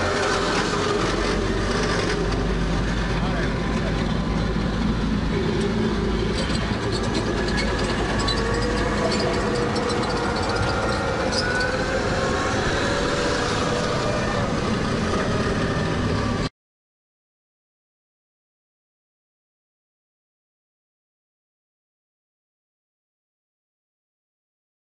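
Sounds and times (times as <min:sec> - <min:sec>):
heavy vehicle engine droning: 0:00.0 - 0:16.5
faint squealing tones: 0:05.3 - 0:16.4.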